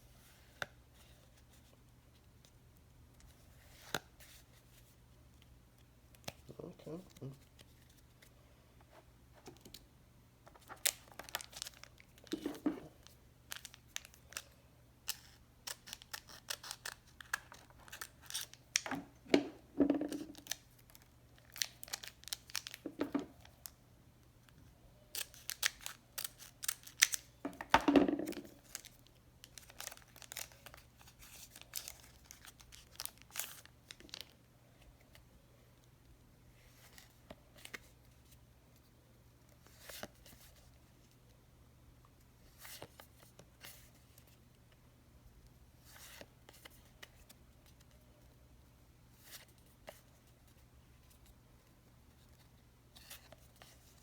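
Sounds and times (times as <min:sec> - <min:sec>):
packaging torn and crinkled: 0:10.7 - 0:12.4, 0:15.1 - 0:18.8, 0:20.2 - 0:22.8, 0:25.2 - 0:27.3, 0:28.6 - 0:34.4.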